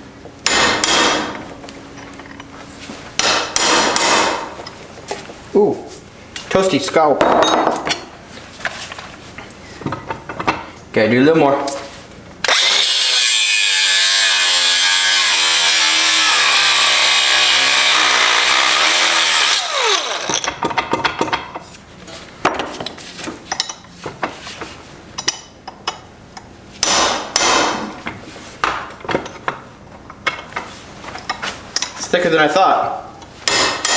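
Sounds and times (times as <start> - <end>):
cutoff tool cutting steel: 12.4 - 20.5.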